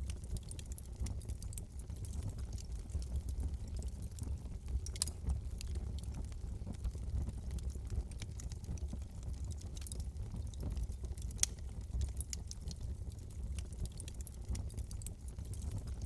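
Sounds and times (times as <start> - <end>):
low rumble of burning: 0.0 - 16.0
wood fire pops and snaps: 0.0 - 16.0.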